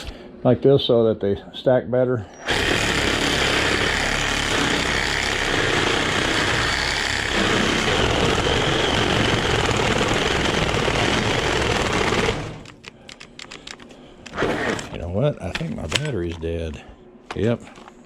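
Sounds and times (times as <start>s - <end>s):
reciprocating saw cutting metal coil: 2.4s - 12.7s.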